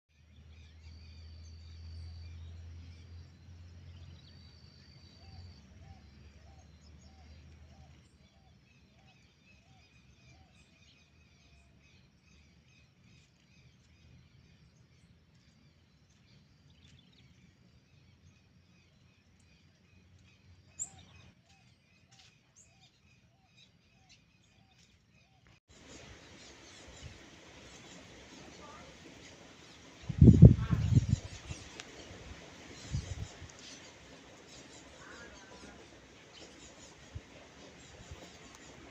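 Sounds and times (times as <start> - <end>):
small birds chirping: 0.1 - 38.9
steady hiss: 25.7 - 38.9.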